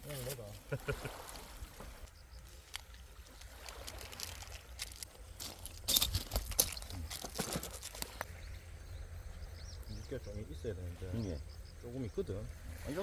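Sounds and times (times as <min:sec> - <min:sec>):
rustling: 0:00.0 - 0:08.3.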